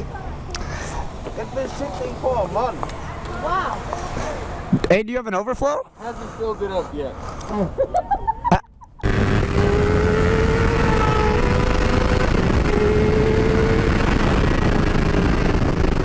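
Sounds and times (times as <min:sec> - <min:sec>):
motorcycle engine humming: 0:09.0 - 0:16.0
wind noise: 0:09.0 - 0:16.0.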